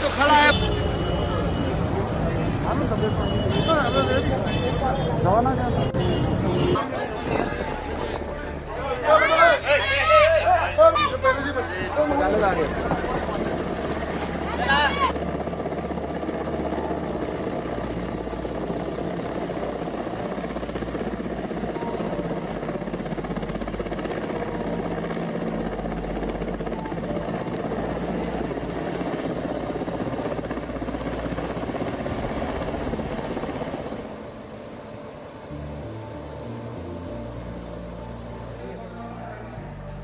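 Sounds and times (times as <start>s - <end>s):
helicopter rotor and engine: 12.0s - 38.6s.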